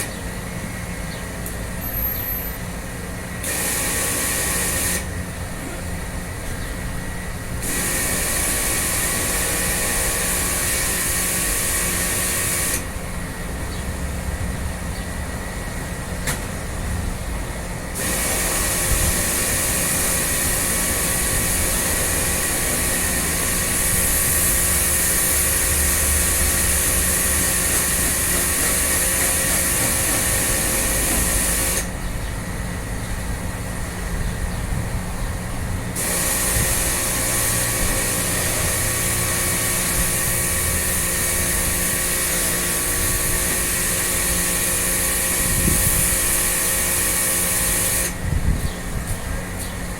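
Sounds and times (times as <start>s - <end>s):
pressure washer water jet hissing: 3.3s - 5.6s, 7.4s - 13.3s, 17.8s - 32.0s, 36.0s - 48.2s
motor humming: 7.1s - 13.5s.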